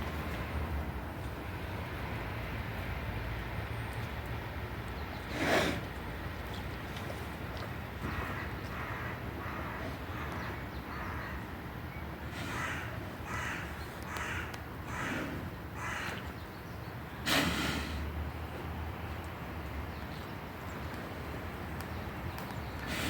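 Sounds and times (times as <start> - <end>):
crow cawing: 8.1 - 10.3, 12.5 - 15.2, 15.8 - 16.1.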